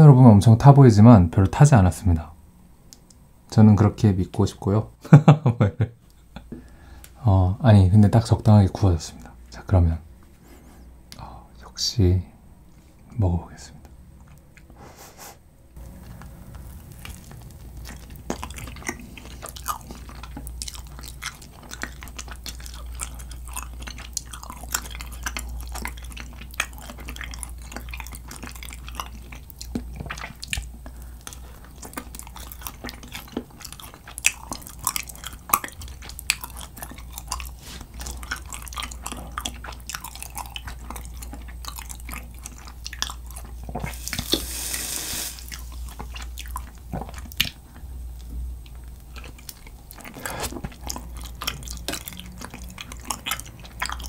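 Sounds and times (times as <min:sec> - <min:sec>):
steady low hum: 0:00.0 - 0:54.0
chewing with wet mouth clicks: 0:13.8 - 0:14.8, 0:15.8 - 0:44.6, 0:45.4 - 0:54.0.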